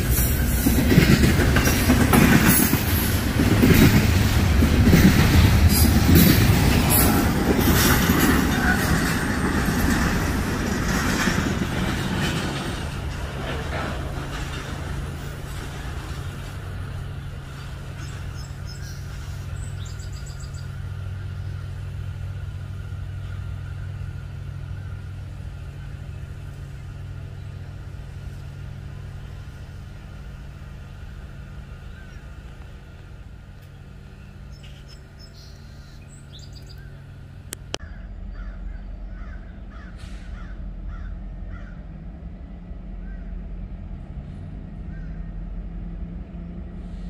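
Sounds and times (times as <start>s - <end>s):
freight train rumble: 0.0s - 47.0s
small birds chirping: 17.1s - 21.9s, 33.6s - 41.8s
crows cawing: 37.8s - 41.9s, 44.9s - 45.4s.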